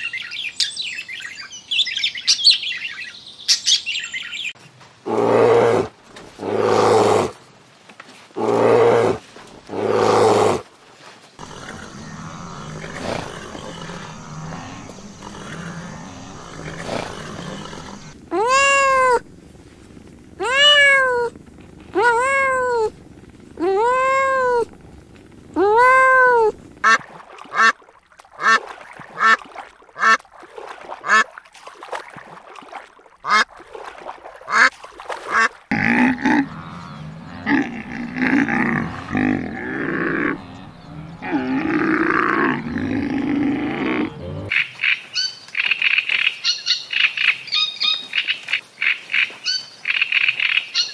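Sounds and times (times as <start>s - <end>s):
drawn-out animal calls: 11.4s - 27.7s, 35.4s - 44.5s
harsh rough animal calls: 11.4s - 27.7s, 35.3s - 44.5s
ducks quacking: 26.8s - 27.8s, 30.0s - 30.2s.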